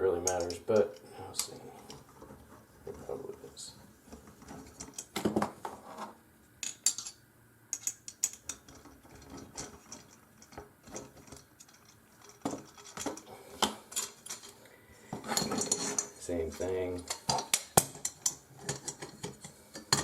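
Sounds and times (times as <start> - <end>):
small metal parts clinking: 6.6 - 14.6, 15.2 - 20.0.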